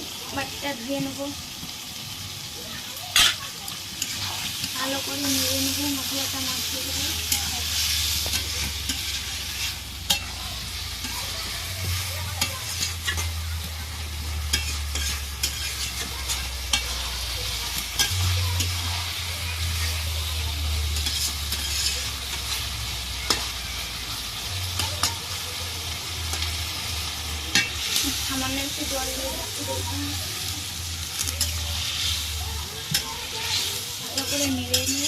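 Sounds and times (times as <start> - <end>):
chicken sizzling in a pot: 0.0 - 35.0
spatula scraping and knocking pot: 14.5 - 17.0.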